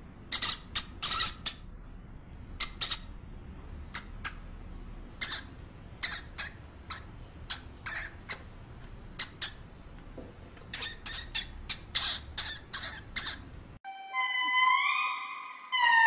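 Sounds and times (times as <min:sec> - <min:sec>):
hamster squeaking: 0:00.3 - 0:01.7, 0:02.6 - 0:03.1, 0:05.2 - 0:08.5, 0:09.2 - 0:09.6, 0:10.6 - 0:13.5.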